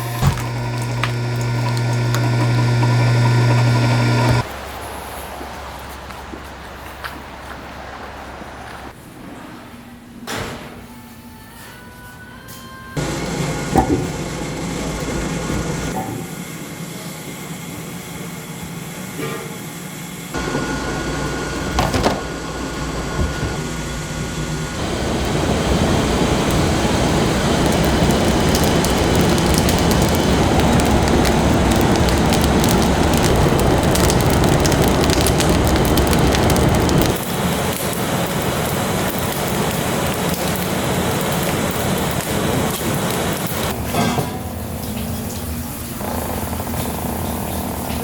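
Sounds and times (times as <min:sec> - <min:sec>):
wood fire crackling: 0:00.0 - 0:04.8, 0:20.4 - 0:43.8.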